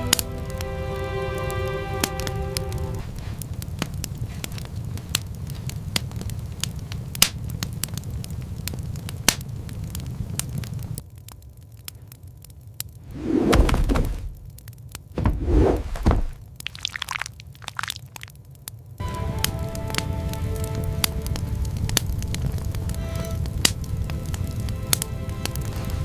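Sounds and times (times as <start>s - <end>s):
wood fire crackling: 0.0s - 26.0s
dull thump: 13.3s - 14.4s, 15.2s - 16.4s.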